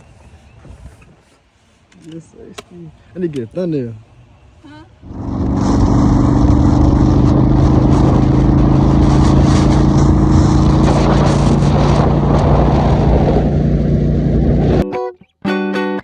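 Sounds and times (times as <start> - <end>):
motorcycle engine running: 5.0 - 14.8
wind noise rushing: 5.0 - 14.8.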